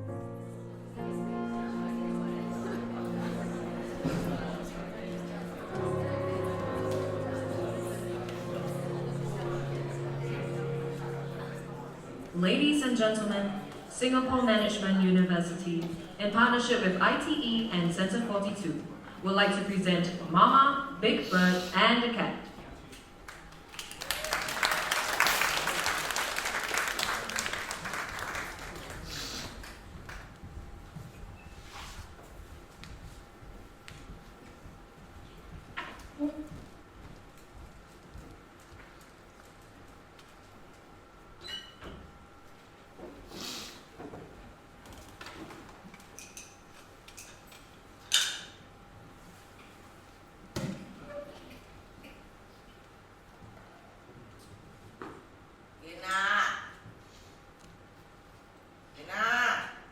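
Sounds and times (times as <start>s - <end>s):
faint steady hum: 0.0s - 59.9s
audience applauding: 23.3s - 30.3s.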